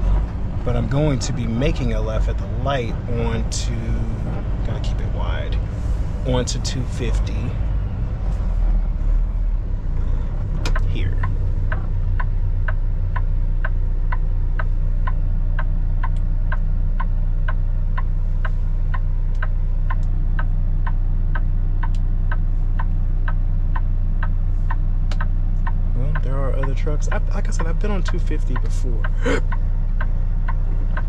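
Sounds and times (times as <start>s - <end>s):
truck engine drone: 0.0s - 31.0s
turn signal clicking: 9.9s - 31.0s.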